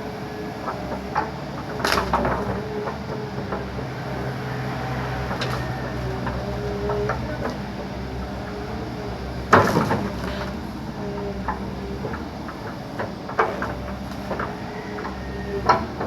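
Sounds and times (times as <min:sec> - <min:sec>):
backhoe engine running: 0:00.0 - 0:16.0
creaks and knocks: 0:11.4 - 0:16.0.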